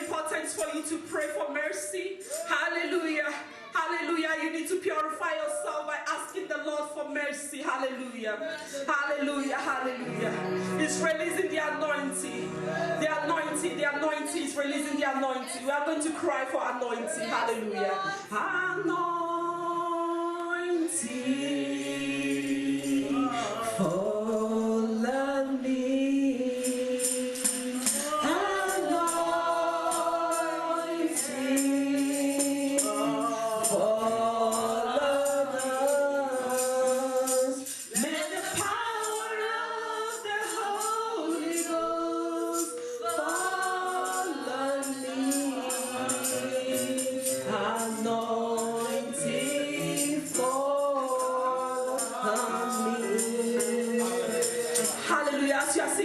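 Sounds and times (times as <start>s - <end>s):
tambourine shaken: 0.0s - 3.0s, 20.8s - 56.0s
group singing worship song: 7.7s - 56.0s.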